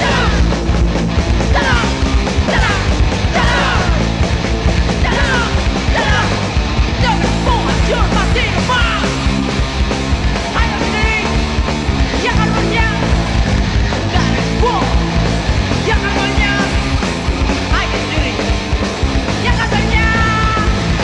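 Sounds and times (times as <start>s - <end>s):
shouted vocals: 0.0s - 0.6s, 1.4s - 4.2s, 4.8s - 9.3s, 12.1s - 13.4s, 14.1s - 17.0s, 19.4s - 21.0s
punk rock band playing live: 0.0s - 21.0s.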